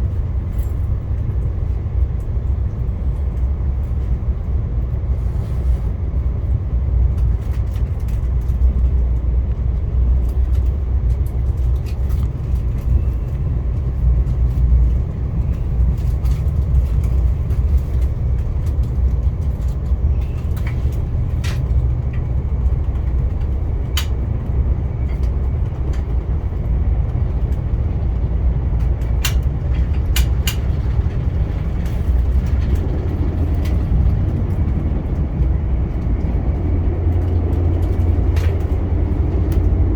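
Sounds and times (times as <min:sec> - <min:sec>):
train running rumble: 0:00.0 - 0:39.9
sharp clicks and ticks: 0:28.6 - 0:39.8.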